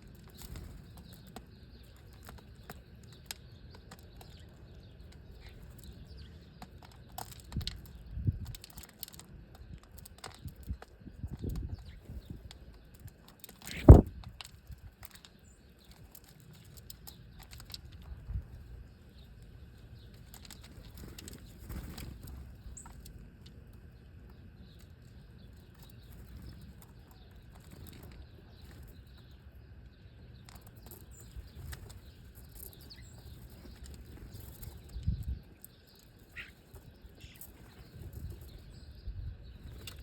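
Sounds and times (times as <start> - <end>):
bird wings fluttering: 13.7 - 14.2, 20.6 - 22.6
faint bird chirps: 24.4 - 40.0.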